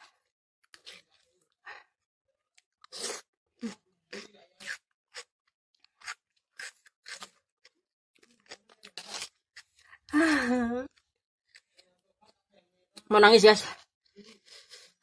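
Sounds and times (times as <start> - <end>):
wet chewing and smacks: 3.6 - 9.8.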